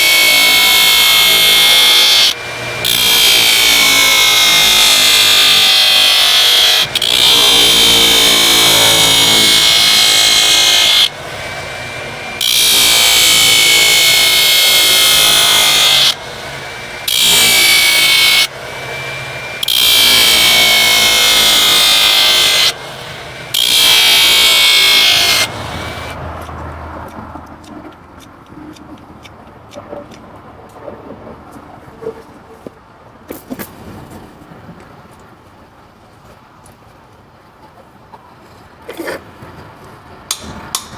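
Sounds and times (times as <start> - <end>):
power tool on hoof: 0.0 - 27.9, 40.3 - 40.9.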